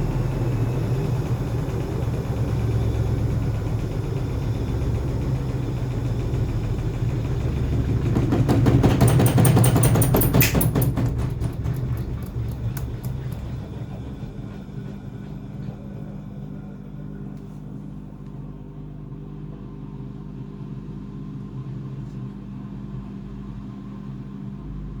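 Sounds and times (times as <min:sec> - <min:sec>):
washing machine motor hum: 0:00.0 - 0:25.0
washing machine drum knocks: 0:07.6 - 0:14.6.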